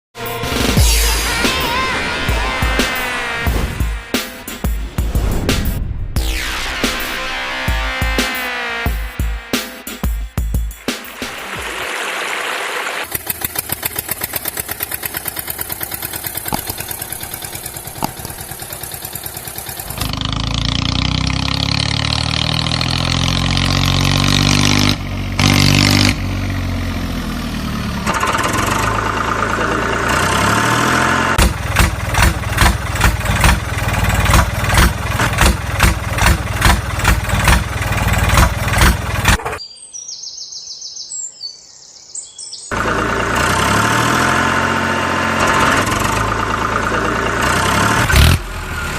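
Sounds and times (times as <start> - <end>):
vehicle engine pulsing: 13.0 - 39.6, 42.7 - 48.9.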